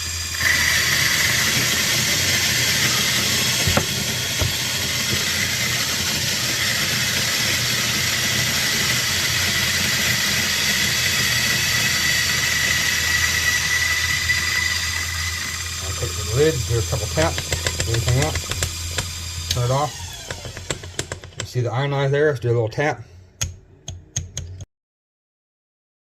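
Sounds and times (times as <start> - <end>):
electric coffee grinder whining: 0.0 - 21.6.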